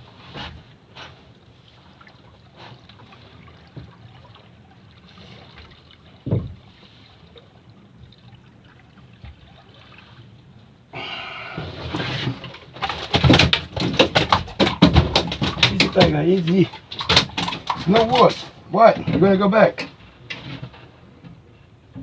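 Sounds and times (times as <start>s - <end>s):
fish splashing in water: 11.0s - 20.7s.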